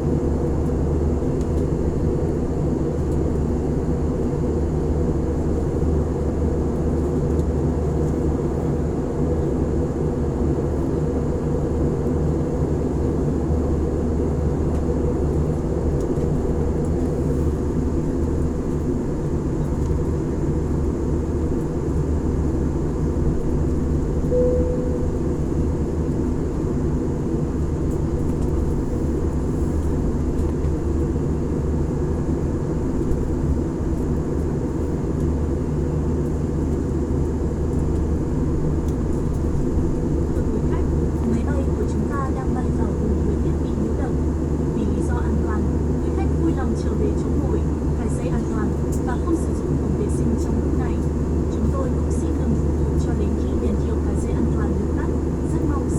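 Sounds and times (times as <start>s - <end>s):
airliner cabin drone: 0.0s - 55.9s
faint tone: 24.3s - 25.7s.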